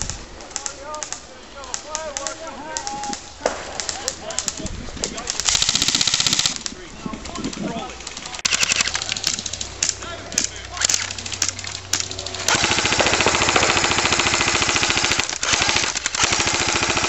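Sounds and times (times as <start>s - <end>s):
airsoft rifle full-auto burst: 5.3s - 6.6s, 8.4s - 9.4s, 12.2s - 17.0s.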